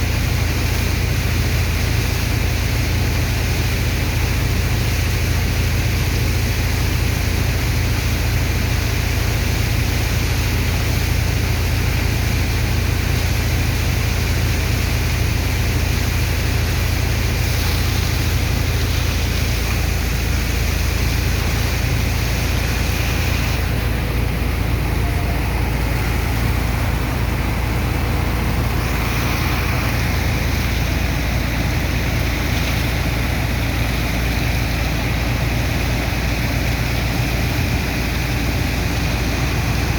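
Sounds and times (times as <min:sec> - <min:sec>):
engine and pump rumbling: 0:00.0 - 0:39.9
rushing hiss of pumped water: 0:00.0 - 0:39.9.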